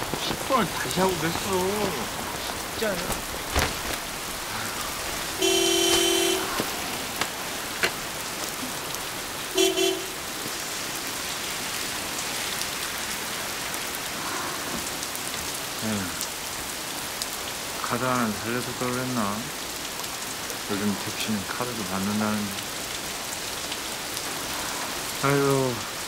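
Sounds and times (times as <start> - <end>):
steady rain falling: 0.0 - 26.0
car horn honking: 5.3 - 7.2, 9.5 - 10.3.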